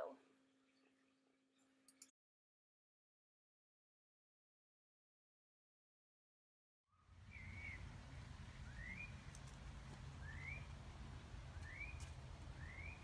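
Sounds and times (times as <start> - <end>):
faint low outdoor rumble: 7.0 - 13.0
bird whistled call: 12.6 - 13.0.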